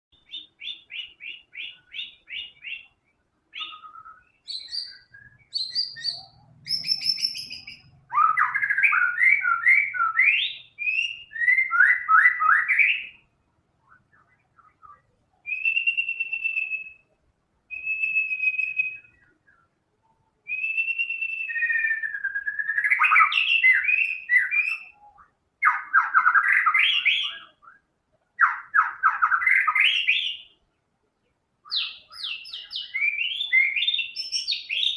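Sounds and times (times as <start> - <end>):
songbird singing varied song: 0.1 - 34.9.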